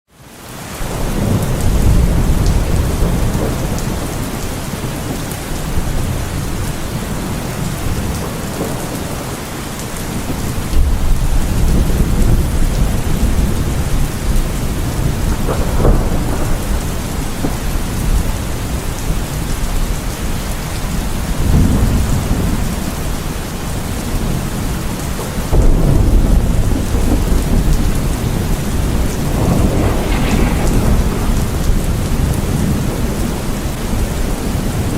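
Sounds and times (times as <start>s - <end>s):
heavy rain falling: 0.1s - 34.9s
rolling thunder: 0.8s - 23.2s, 23.8s - 34.9s.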